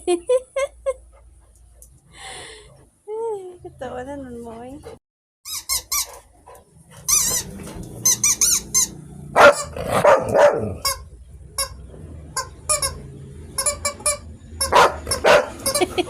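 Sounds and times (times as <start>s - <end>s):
high warbling squeaks: 7.0s - 9.8s, 10.8s - 15.8s
dog barking: 9.3s - 11.0s, 14.6s - 15.8s.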